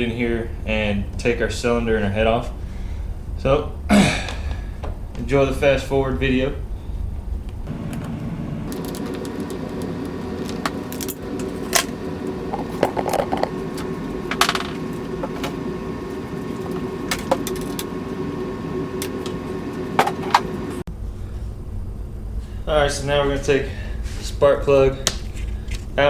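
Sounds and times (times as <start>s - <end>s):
hand tools clinking and rattling: 7.7s - 20.8s
plastic panels being handled: 7.7s - 20.8s
steady low hum: 7.7s - 20.9s.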